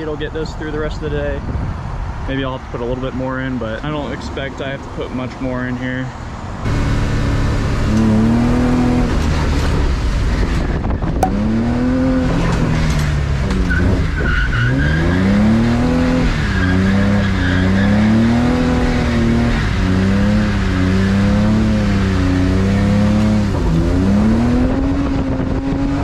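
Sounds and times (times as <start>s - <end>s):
car engine accelerating: 6.6s - 26.0s.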